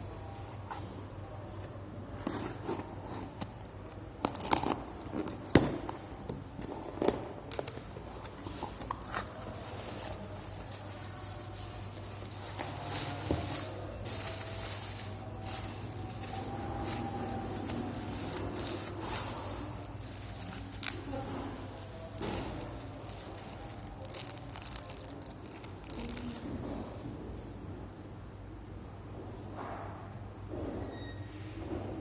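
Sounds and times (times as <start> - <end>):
packaging rustle: 0.2 - 26.8
packaging tearing and crinkling: 2.2 - 26.6.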